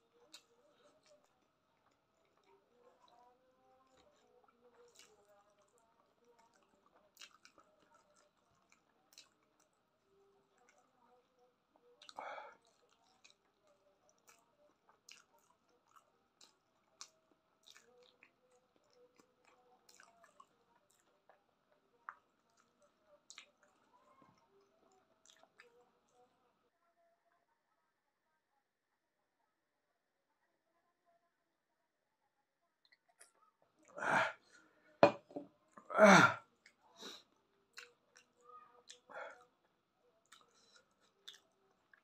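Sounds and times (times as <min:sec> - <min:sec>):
person chewing food: 0:00.2 - 0:09.9, 0:12.0 - 0:21.4, 0:22.0 - 0:23.9, 0:24.5 - 0:25.8, 0:37.7 - 0:39.5, 0:40.2 - 0:42.0.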